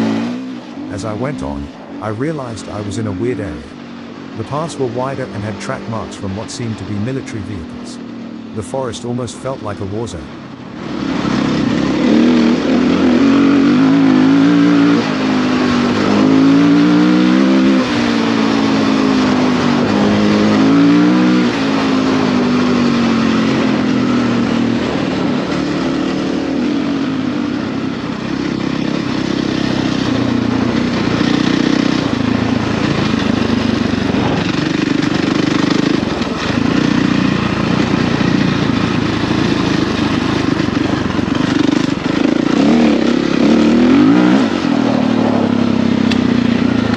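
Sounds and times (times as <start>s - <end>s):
dirt bike engine revving: 0.0s - 3.6s, 4.4s - 46.9s.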